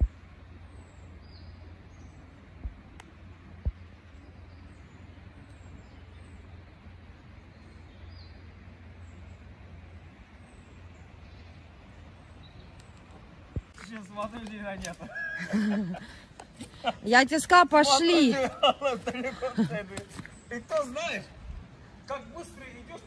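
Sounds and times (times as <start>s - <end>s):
steady low rumble: 0.0s - 13.8s
soft low thumps: 2.5s - 4.1s.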